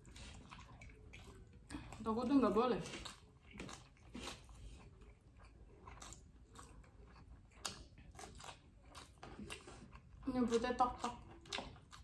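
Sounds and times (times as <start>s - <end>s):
chewing with small crunches: 0.0s - 12.0s
bean crunch: 2.7s - 12.0s.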